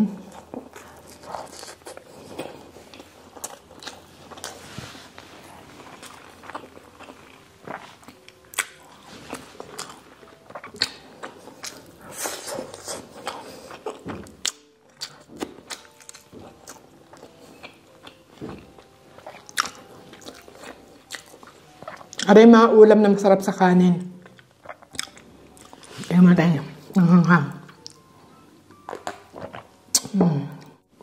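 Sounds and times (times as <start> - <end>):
person chewing food: 0.2 - 22.3, 24.1 - 26.2, 26.8 - 31.0
mouth clicks and smacks: 28.9 - 30.2.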